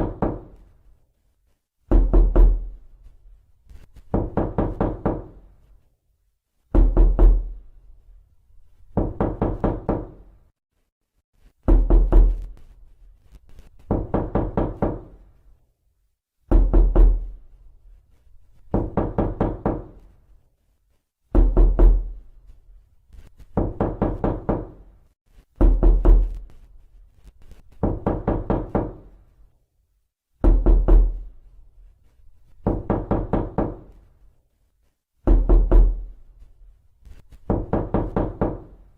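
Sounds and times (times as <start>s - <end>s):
knocking on a door: 0.0s - 0.6s, 1.9s - 2.8s, 4.0s - 5.4s, 6.7s - 7.6s, 8.9s - 10.3s, 11.6s - 12.5s, 13.8s - 15.2s, 16.5s - 17.4s, 18.7s - 20.0s, 21.3s - 22.2s, 23.5s - 24.8s, 25.6s - 26.4s, 27.7s - 29.1s, 30.4s - 31.3s, 32.6s - 34.0s, 35.2s - 36.1s, 37.4s - 38.8s.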